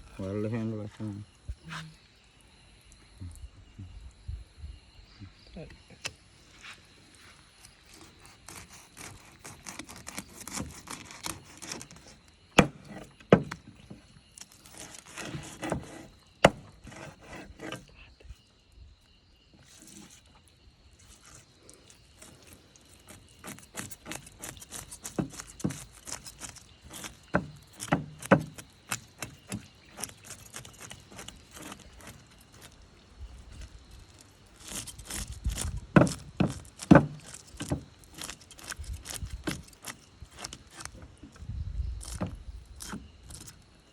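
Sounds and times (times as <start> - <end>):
knife scraping fish: 6.6 - 18.0, 19.6 - 20.4, 21.0 - 41.4, 42.0 - 43.6
knife chopping on wooden block: 8.2 - 14.0, 14.7 - 17.8, 23.1 - 32.2, 35.6 - 38.4.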